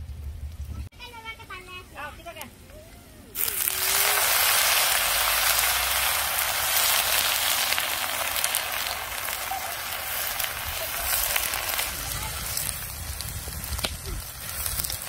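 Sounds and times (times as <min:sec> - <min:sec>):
food sizzling in hot oil: 0:03.4 - 0:15.0.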